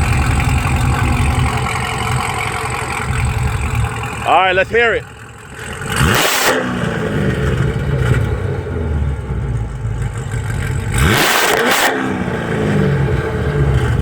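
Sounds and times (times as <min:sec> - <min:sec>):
car engine revving and idling: 0:00.0 - 0:14.0.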